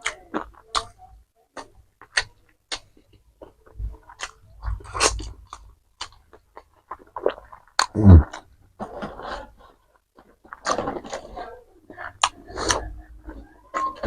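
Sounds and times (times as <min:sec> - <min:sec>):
chewing with mouth smacks: 0:01.6 - 0:08.5, 0:10.2 - 0:14.0.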